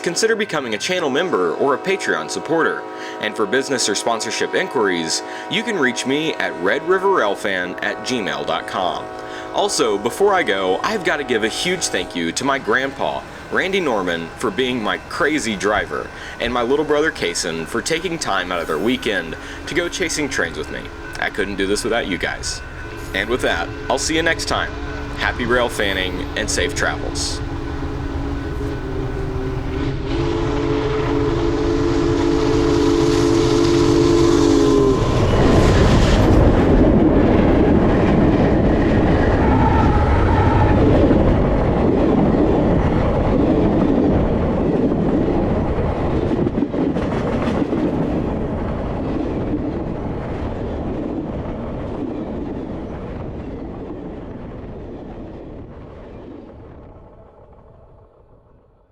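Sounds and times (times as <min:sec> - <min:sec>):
train whistle: 0:00.0 - 0:37.8, 0:39.0 - 0:41.5
train rumbling on rails: 0:00.0 - 0:58.8.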